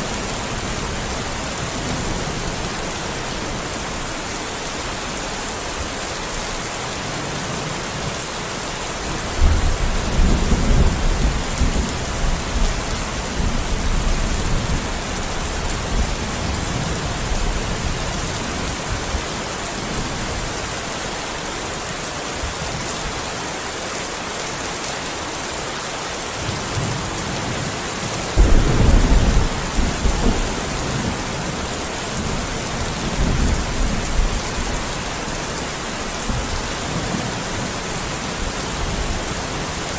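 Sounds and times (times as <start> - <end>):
heavy rain: 0.0 - 39.9
thunder rumbling: 28.4 - 34.8.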